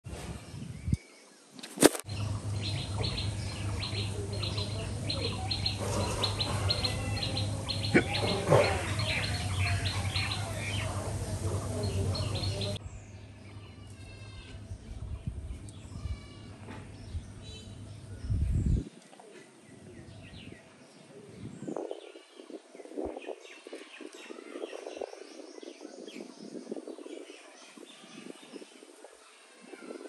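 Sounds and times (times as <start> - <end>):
birds chirping: 0.1 - 30.0
faint trilling chirps: 2.1 - 12.8.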